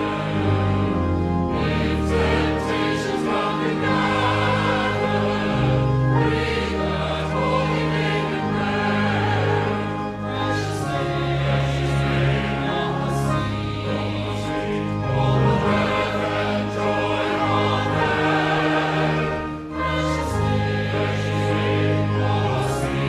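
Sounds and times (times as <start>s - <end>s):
choir singing sacred piece: 0.0s - 23.0s.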